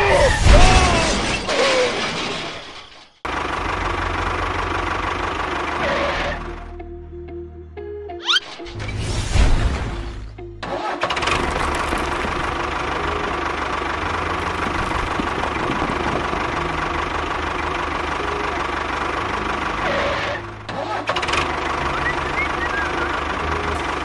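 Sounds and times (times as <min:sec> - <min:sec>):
tractor engine running: 0:03.2 - 0:06.7, 0:10.6 - 0:24.0.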